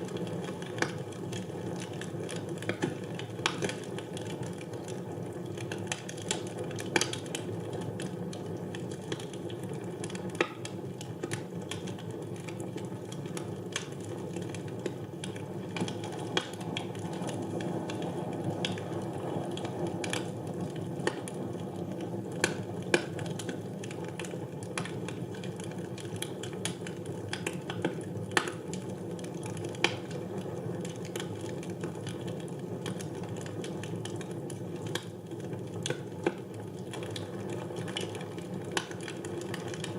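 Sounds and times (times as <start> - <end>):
wood fire crackling: 0.0 - 39.9
low rush of flames: 15.3 - 25.6.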